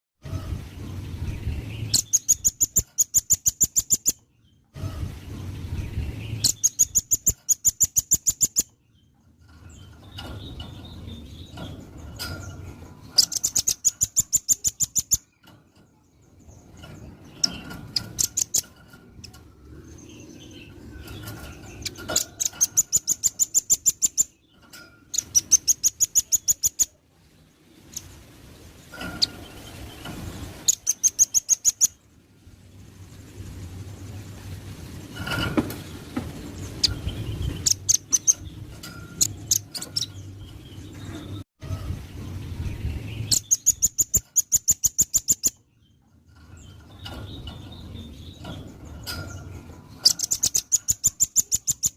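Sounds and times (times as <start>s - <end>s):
bird singing rapid high notes: 0.6s - 27.0s
bird chips: 1.5s - 4.3s, 5.8s - 41.4s, 42.4s - 51.9s.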